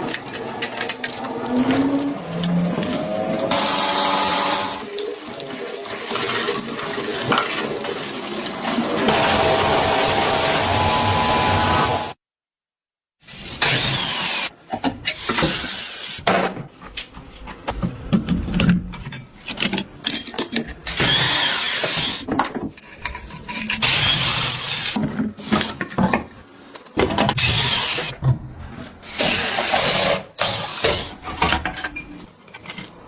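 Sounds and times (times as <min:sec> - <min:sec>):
power tool running: 0:03.5 - 0:04.8, 0:09.1 - 0:12.2.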